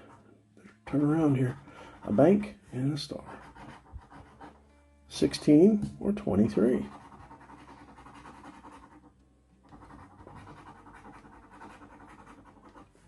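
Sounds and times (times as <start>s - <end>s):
scratching lottery ticket coating: 6.8s - 9.1s, 9.7s - 13.0s.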